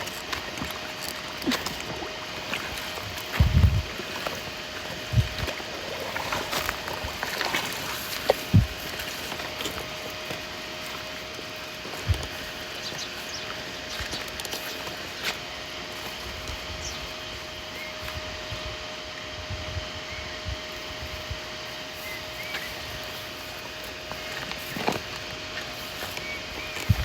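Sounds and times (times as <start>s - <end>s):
muddy water sloshing: 0.0s - 18.2s, 20.9s - 27.0s
dull low thumps: 3.4s - 3.9s.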